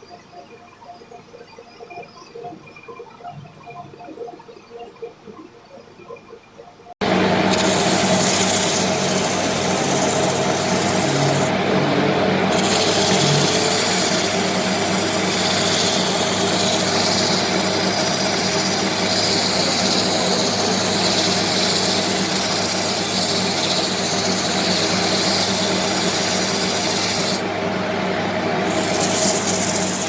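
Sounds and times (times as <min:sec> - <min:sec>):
lathe tool hissing on wood: 0:07.0 - 0:27.5, 0:28.5 - 0:30.0
wood lathe motor running: 0:07.0 - 0:30.0.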